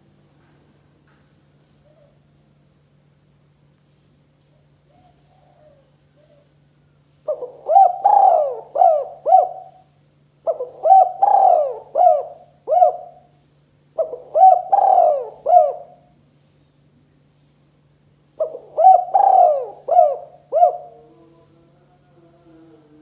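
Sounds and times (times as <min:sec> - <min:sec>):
dove cooing: 0:04.9 - 0:06.5, 0:07.2 - 0:13.3, 0:14.0 - 0:16.1, 0:18.4 - 0:23.0.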